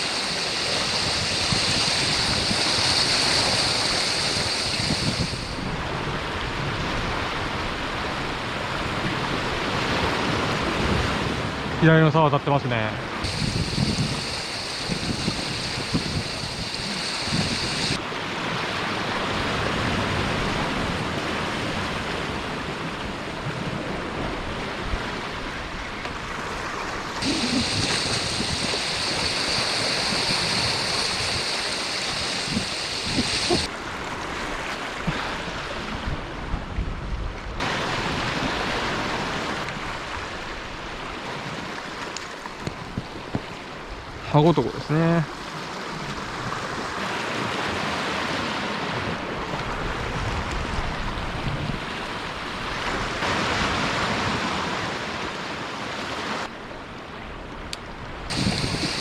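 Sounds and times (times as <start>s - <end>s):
wind buffeting microphone: 0.0s - 11.8s, 13.2s - 18.0s, 19.5s - 33.7s, 58.0s - 59.0s
surf on rocky shore: 0.0s - 59.0s.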